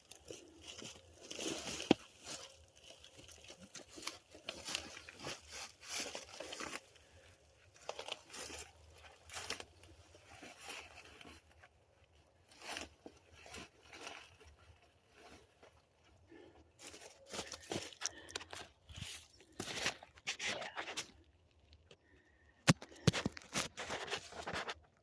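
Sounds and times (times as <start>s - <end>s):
logs knocking and cracking: 0.0s - 11.4s, 16.3s - 22.0s, 22.6s - 25.0s
crunching and rustling in dry leaves: 0.0s - 22.3s.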